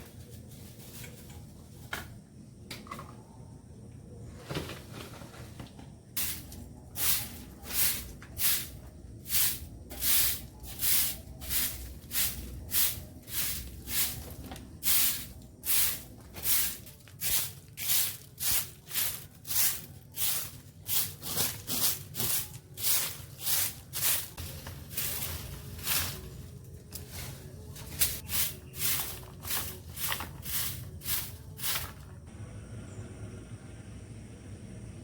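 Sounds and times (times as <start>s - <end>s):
stiff brush scrubbing hard surface: 9.3s - 26.4s.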